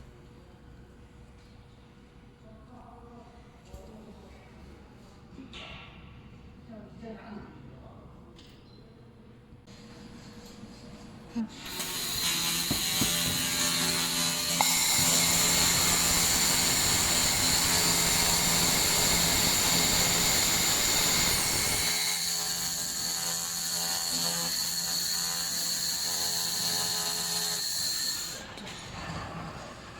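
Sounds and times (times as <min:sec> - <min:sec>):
laser welding machine whine: 0:11.7 - 0:28.4.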